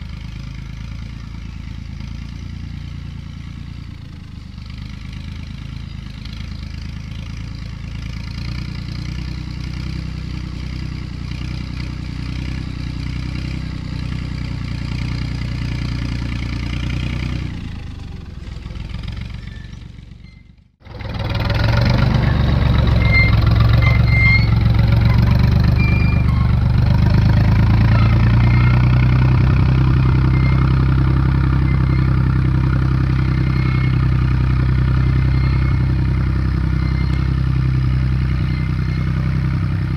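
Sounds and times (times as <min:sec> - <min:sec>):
tractor engine running: 0:00.0 - 0:39.9
faint short squeaks: 0:19.2 - 0:20.7, 0:22.1 - 0:39.6.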